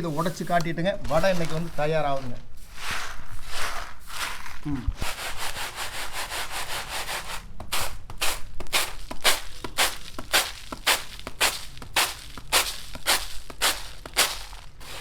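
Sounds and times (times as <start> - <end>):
stone quern grinding: 8.2 - 15.0.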